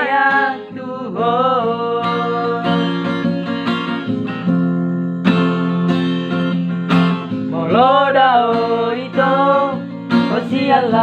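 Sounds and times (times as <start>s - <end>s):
person singing: 0.0s - 3.2s, 7.5s - 11.0s
acoustic guitar: 0.0s - 11.0s.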